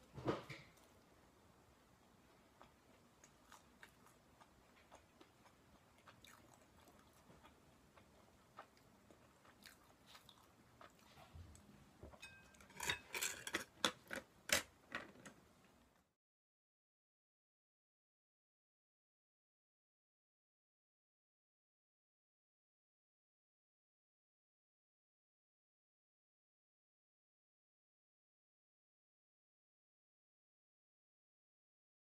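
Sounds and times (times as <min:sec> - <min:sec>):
person chewing food: 0:02.0 - 0:14.3.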